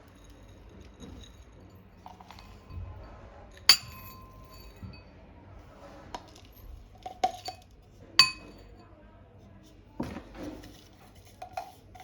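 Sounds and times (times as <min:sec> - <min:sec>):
dishes clattering: 0:00.0 - 0:05.0, 0:06.1 - 0:08.7
glassware clinking: 0:00.0 - 0:05.1, 0:06.2 - 0:08.8.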